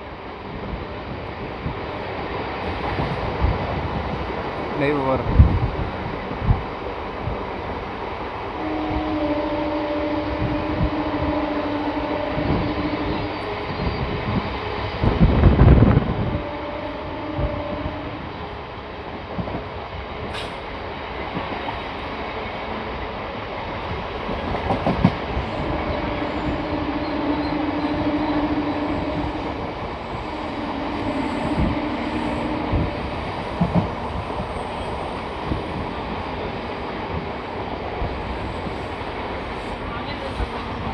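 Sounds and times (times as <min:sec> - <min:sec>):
train wheels rumbling on track: 0:00.0 - 0:40.9
rail joint clicks: 0:19.1 - 0:40.9.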